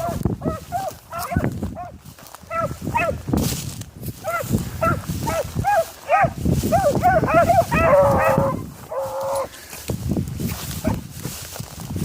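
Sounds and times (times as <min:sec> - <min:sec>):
hounds baying: 0:00.0 - 0:03.3, 0:04.2 - 0:09.6, 0:10.7 - 0:11.1
wind rumbling on microphone: 0:00.0 - 0:12.0.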